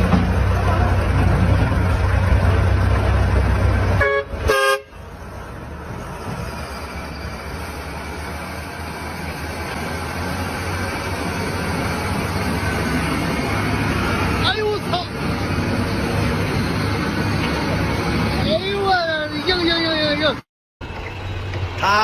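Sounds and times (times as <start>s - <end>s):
motor vehicle road noise: 0.0s - 22.0s
vehicle horn honks: 4.0s - 5.0s.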